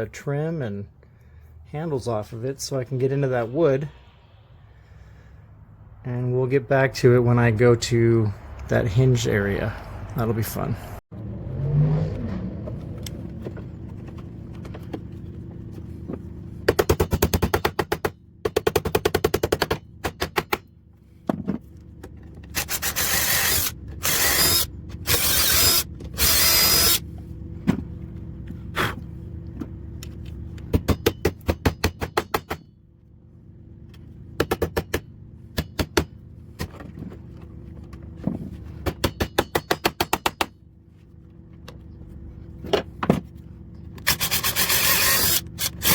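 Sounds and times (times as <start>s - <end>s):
power driver removing screws: 22.4s - 27.0s, 44.0s - 45.9s.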